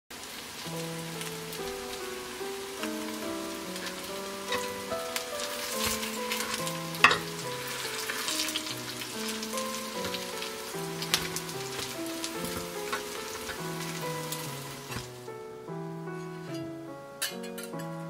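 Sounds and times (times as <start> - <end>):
pancakes sizzling in oil: 0.1 - 15.3
soft background music: 0.6 - 18.0
metal spatula clacking on pan: 17.2 - 17.8.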